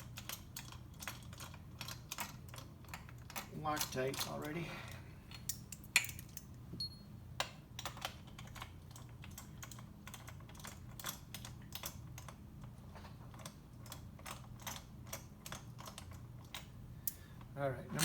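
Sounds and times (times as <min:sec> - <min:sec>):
metal parts clicking and tapping: 0:00.0 - 0:04.6, 0:05.3 - 0:06.5, 0:07.4 - 0:12.4, 0:13.3 - 0:18.0
steady low hum: 0:02.5 - 0:07.7.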